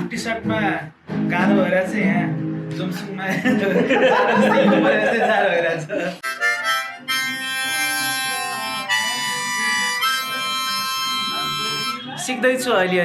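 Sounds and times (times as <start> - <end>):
harmonica chords: 6.2 - 12.3.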